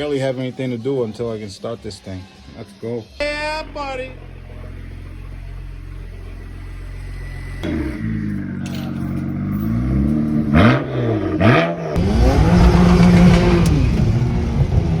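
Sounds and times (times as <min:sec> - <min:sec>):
car engine revving: 0:03.4 - 0:15.0.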